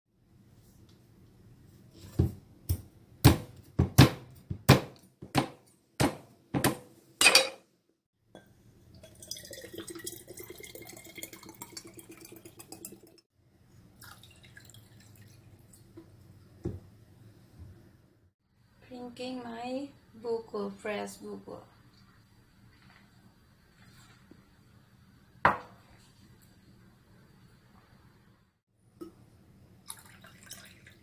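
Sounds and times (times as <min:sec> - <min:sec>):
liquid trickling and dripping: 0:08.9 - 0:13.2, 0:14.0 - 0:16.3, 0:29.8 - 0:31.0.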